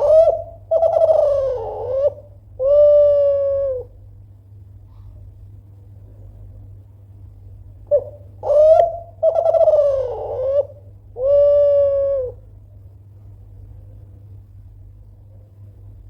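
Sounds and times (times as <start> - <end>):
dove cooing: 0.0 - 4.0, 7.9 - 12.5.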